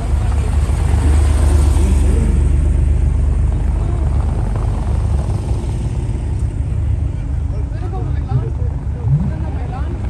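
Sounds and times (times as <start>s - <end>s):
car engine rumble: 0.0s - 10.0s.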